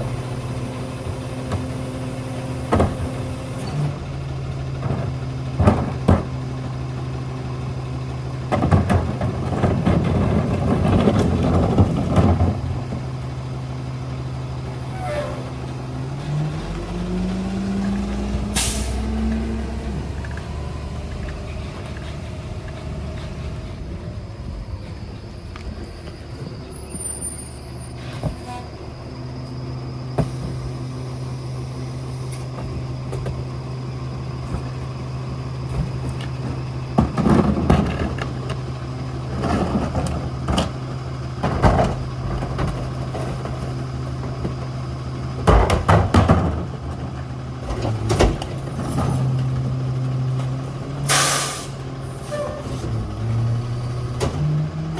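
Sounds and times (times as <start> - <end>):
garbage truck engine hum: 0.0 - 54.9.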